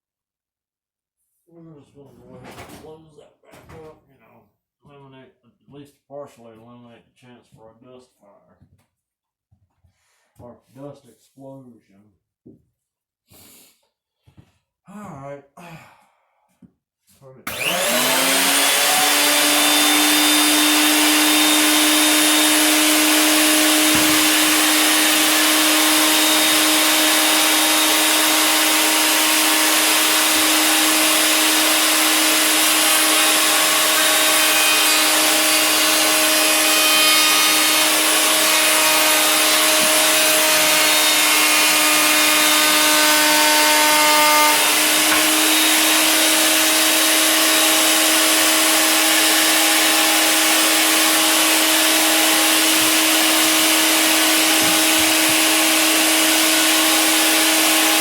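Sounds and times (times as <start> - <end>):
router high whine: 17.5 - 58.0.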